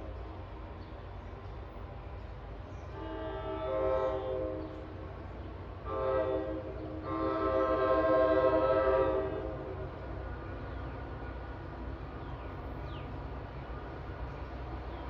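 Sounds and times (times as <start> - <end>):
train air horn blasts: 2.9 - 4.9, 5.8 - 9.9.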